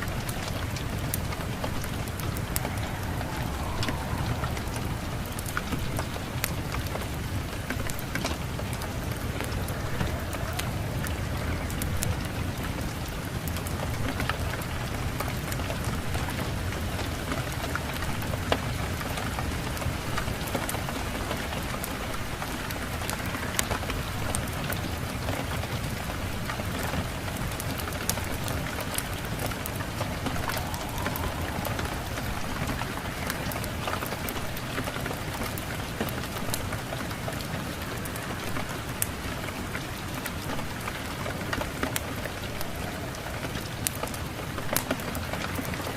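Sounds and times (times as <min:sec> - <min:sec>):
steady rain: 0:00.0 - 0:45.9.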